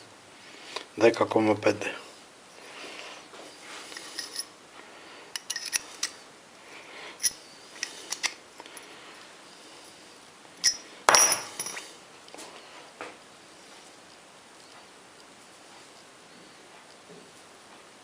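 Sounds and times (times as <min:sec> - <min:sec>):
small metal pieces clinking: 0:05.4 - 0:06.1, 0:10.6 - 0:11.8.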